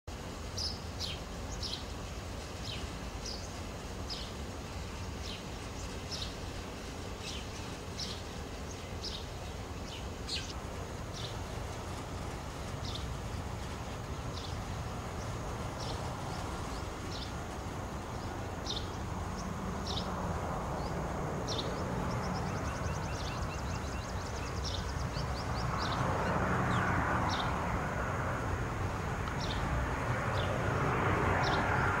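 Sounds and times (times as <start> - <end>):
rushing noise: 24.6 - 32.0.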